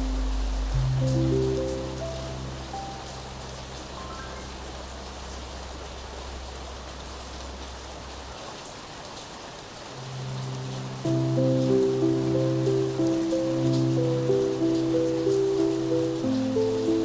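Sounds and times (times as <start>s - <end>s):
low held music tone: 0.0s - 8.2s
steady rain falling: 0.0s - 17.0s.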